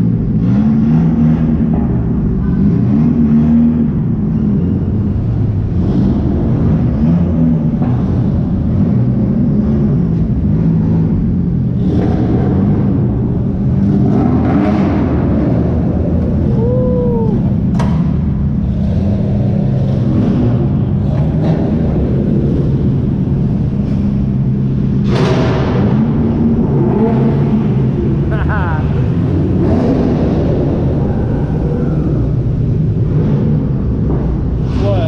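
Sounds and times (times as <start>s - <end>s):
car engines revving: 0.0s - 35.0s.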